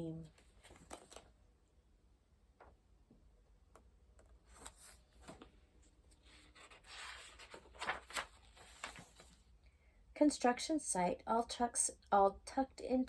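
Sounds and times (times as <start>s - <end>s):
paper page rustling: 0.3s - 1.4s, 4.4s - 9.5s.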